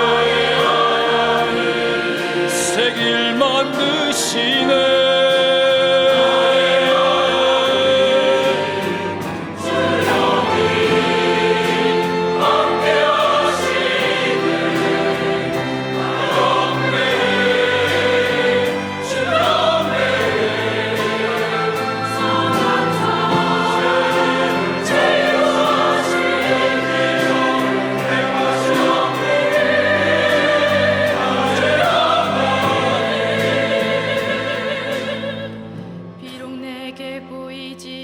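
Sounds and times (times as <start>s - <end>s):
church choir singing: 0.0s - 36.0s
small orchestra playing: 0.0s - 37.7s
piano: 0.0s - 38.0s
drums keeping a steady beat: 8.7s - 33.0s.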